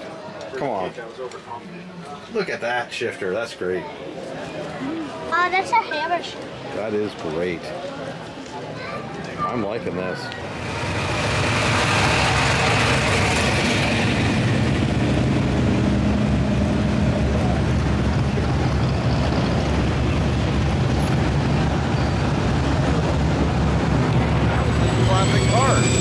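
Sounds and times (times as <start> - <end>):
vehicle engine running: 10.5 - 24.9.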